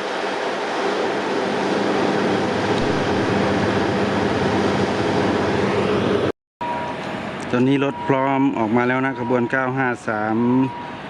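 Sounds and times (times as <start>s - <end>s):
diesel railcar engines running: 0.0s - 11.0s.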